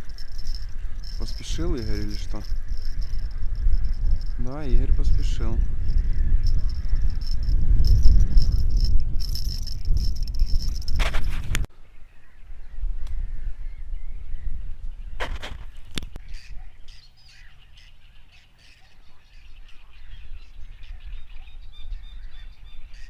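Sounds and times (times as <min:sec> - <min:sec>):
birds calling faintly: 0:00.0 - 0:10.9, 0:11.7 - 0:23.0
steady low rumble: 0:00.0 - 0:11.6.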